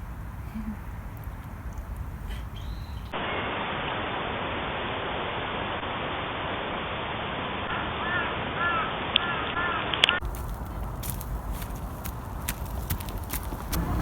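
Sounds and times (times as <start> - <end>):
bird calling: 0.0 - 3.2, 8.0 - 14.0
steady rushing noise: 3.0 - 9.2.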